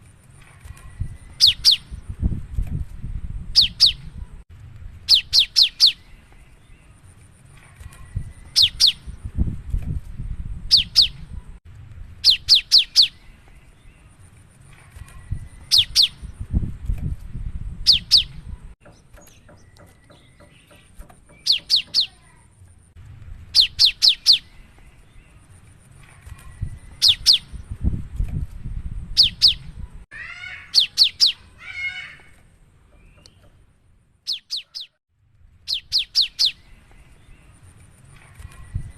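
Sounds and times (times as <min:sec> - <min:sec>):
bird whistling song: 0:00.9 - 0:02.0, 0:03.5 - 0:04.1, 0:05.1 - 0:06.2, 0:08.1 - 0:09.2, 0:10.7 - 0:11.4, 0:12.2 - 0:13.3, 0:15.2 - 0:16.4, 0:17.8 - 0:18.5, 0:19.2 - 0:22.2, 0:23.5 - 0:25.0, 0:26.5 - 0:27.7, 0:29.2 - 0:29.8, 0:30.7 - 0:31.5, 0:34.3 - 0:35.0, 0:35.7 - 0:37.3
harsh bird chattering call: 0:08.5 - 0:09.1, 0:17.9 - 0:22.4, 0:29.2 - 0:32.4, 0:34.3 - 0:35.0.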